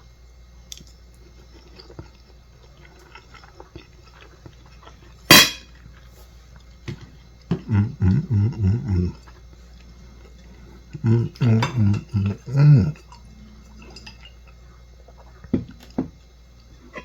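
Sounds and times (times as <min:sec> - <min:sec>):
man humming approval: 0:07.5 - 0:09.3, 0:10.9 - 0:13.1.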